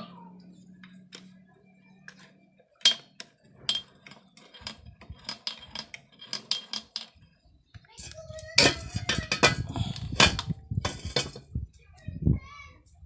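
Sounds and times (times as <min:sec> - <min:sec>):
metal tools clinking: 0:02.8 - 0:07.2, 0:08.0 - 0:11.5.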